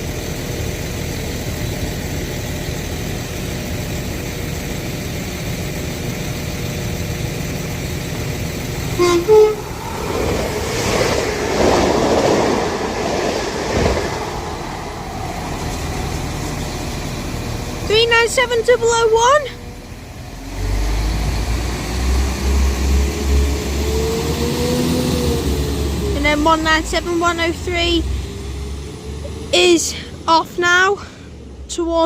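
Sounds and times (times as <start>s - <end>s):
diesel train rumbling: 0.0s - 32.0s
train passing at speed: 8.6s - 18.8s
two-note train horn: 8.9s - 10.0s.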